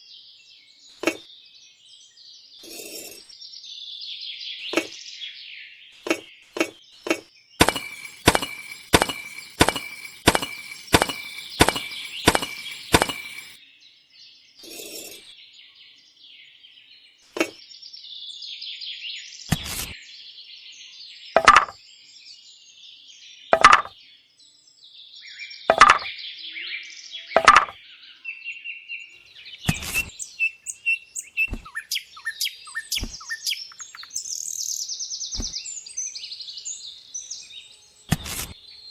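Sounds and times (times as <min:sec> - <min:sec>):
birds chirping: 0:06.0 - 0:13.6, 0:29.1 - 0:38.9
heavy knocks: 0:07.6 - 0:13.6
sharp taps: 0:07.6 - 0:13.6.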